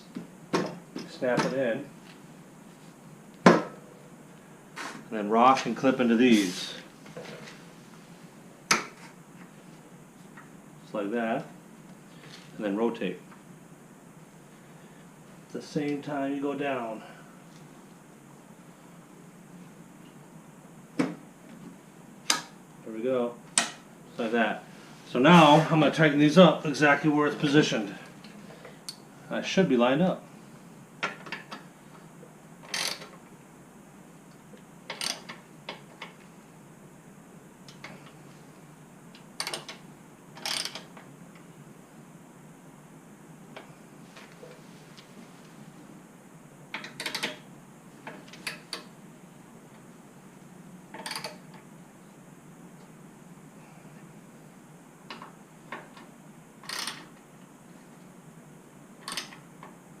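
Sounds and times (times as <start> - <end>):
ratchet wrench clicking: 40.4 - 40.8.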